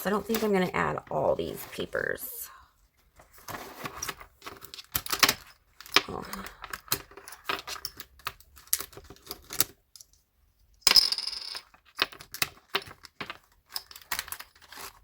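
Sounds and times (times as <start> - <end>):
paper scraping rustle: 3.2 - 4.3.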